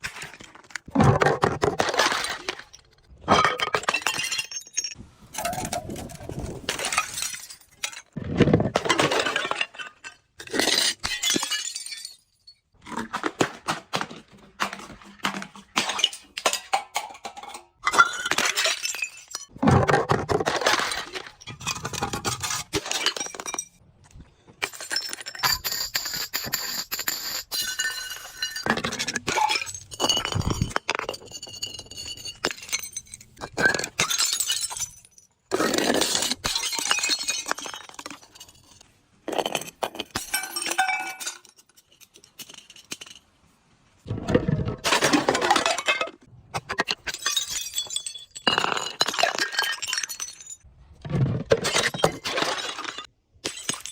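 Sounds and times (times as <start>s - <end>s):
glass crushing and breaking: 0.0s - 23.8s, 24.6s - 43.4s, 44.4s - 53.9s
glass pieces ringing: 2.1s - 5.7s, 24.7s - 35.4s, 39.5s - 43.2s, 46.8s - 50.6s.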